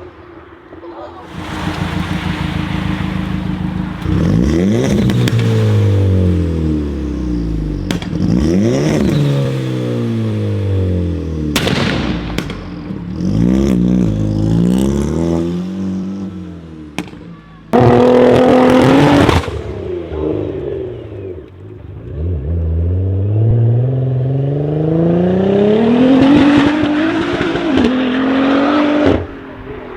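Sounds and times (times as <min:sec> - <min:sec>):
exhaust cracks: 0:01.2 - 0:22.8
car engine revving: 0:01.2 - 0:29.9.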